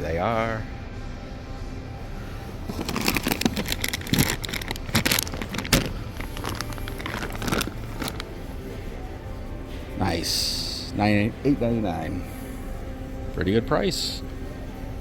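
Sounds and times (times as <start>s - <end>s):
store hum: 0.0s - 15.0s
plastic bag crinkling: 2.7s - 8.4s.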